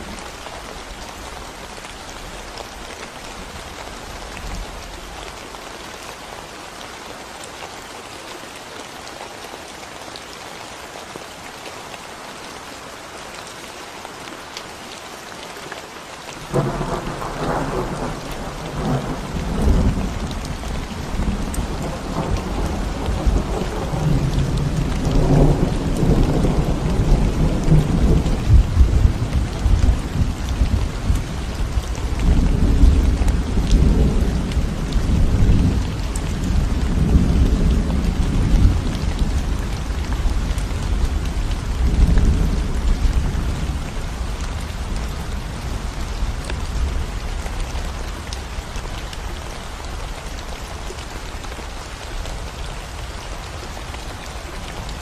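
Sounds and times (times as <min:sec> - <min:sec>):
rain on concrete road: 0:00.0 - 0:55.0
low rumble of thunder: 0:16.5 - 0:47.7.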